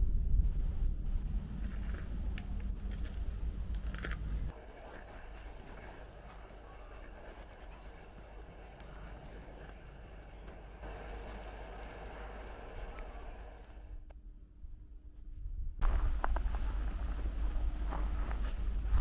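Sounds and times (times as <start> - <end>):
background hiss: 4.5 - 14.1
small birds calling: 4.5 - 14.1.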